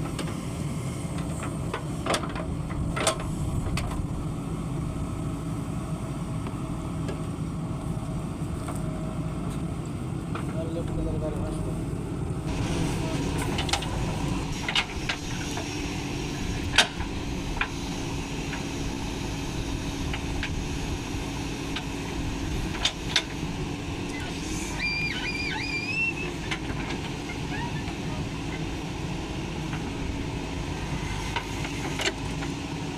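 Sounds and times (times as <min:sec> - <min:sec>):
diesel engine running: 0:00.0 - 0:32.9
wavering whistle: 0:24.1 - 0:26.4.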